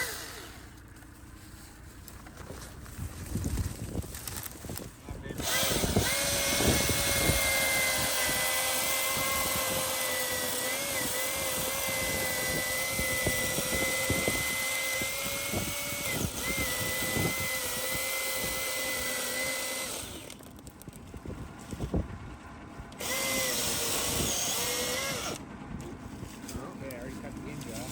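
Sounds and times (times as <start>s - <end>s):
electric chainsaw cutting log: 0.0s - 0.9s, 5.3s - 20.5s, 22.9s - 25.4s.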